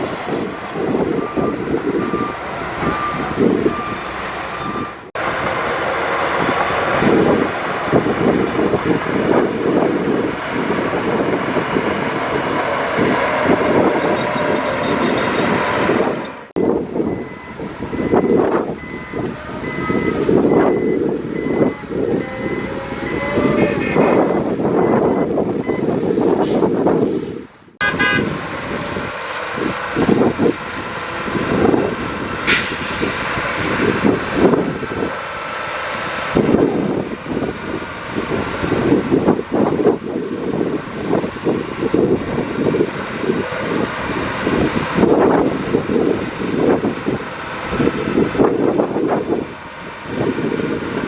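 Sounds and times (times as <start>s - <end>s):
heavy diesel engines under load: 0.0s - 51.0s
high repeated beeping: 12.1s - 25.9s.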